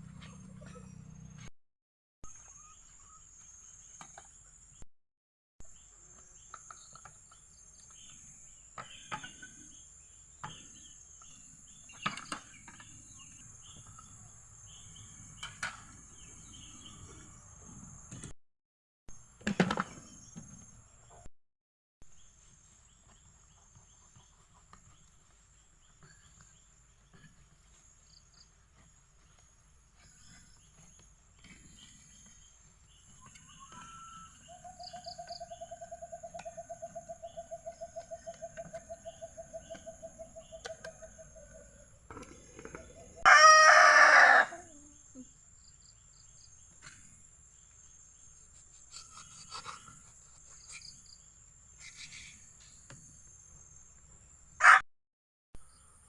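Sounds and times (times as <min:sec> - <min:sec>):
rooster crowing: 0:43.2 - 0:44.8, 0:54.6 - 0:54.8.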